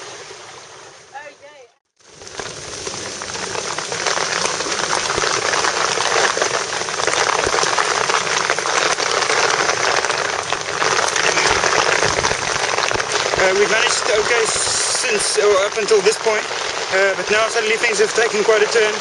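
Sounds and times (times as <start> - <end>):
heavy rain pouring: 2.0 - 19.0.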